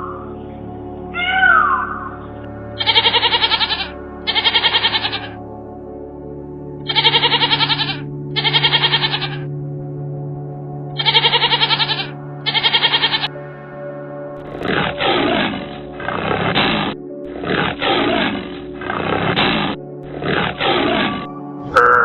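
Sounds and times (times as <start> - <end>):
background music: 0.0 - 22.0
quavering bleats: 1.1 - 5.4, 6.9 - 9.5, 11.0 - 13.4, 14.5 - 22.0
lion roaring: 14.4 - 22.0.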